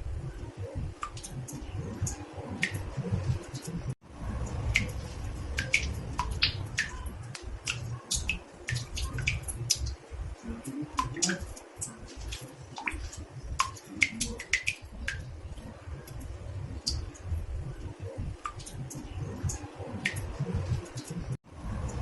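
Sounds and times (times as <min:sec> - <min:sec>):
low rumble: 0:00.0 - 0:12.4
water drops plinking into bathtub: 0:04.4 - 0:21.3.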